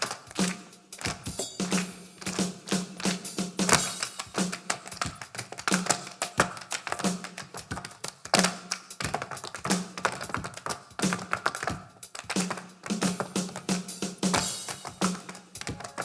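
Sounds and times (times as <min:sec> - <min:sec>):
percussion taps and clicks: 0:00.0 - 0:16.0.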